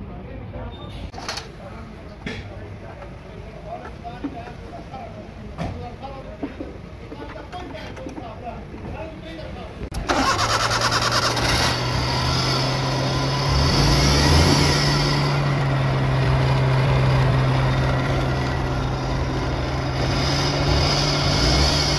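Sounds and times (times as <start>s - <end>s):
car engine starting and idling: 9.8s - 21.9s.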